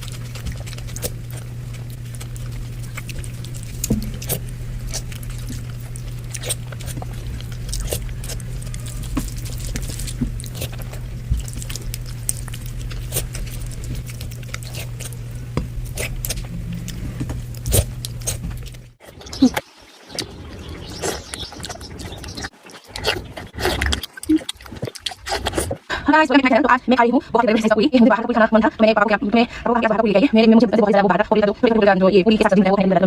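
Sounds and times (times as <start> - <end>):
steady low hum: 0.0 - 19.6
chewing with wet mouth clicks: 0.0 - 25.8.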